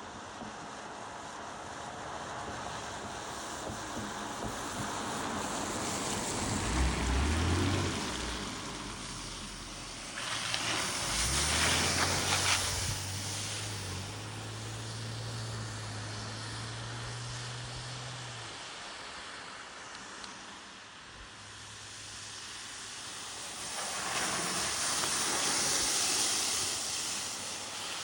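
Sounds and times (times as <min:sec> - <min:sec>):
wheels rolling on wet road: 0:00.0 - 0:28.0
rushing wind: 0:01.1 - 0:15.2.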